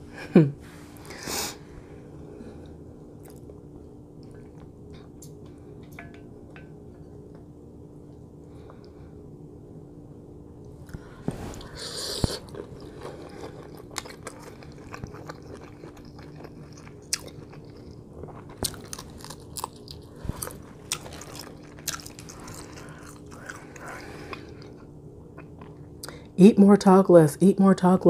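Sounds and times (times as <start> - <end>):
person chewing shrimp: 10.9 - 25.9.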